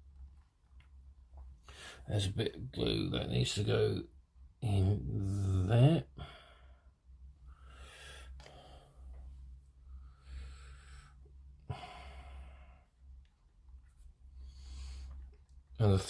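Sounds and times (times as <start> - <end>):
steady low hum: 0.0 - 16.0
person breathing: 1.6 - 2.1, 6.2 - 13.1, 14.3 - 15.3.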